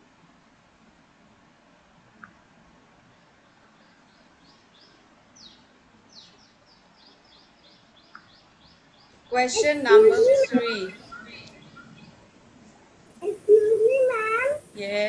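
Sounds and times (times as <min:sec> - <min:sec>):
high downward chirping bird song: 0:13.2 - 0:14.8.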